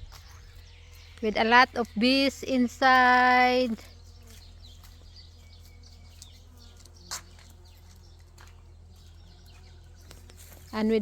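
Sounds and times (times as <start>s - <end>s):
bees buzzing: 0.0s - 11.0s
birds chirping: 0.0s - 11.0s.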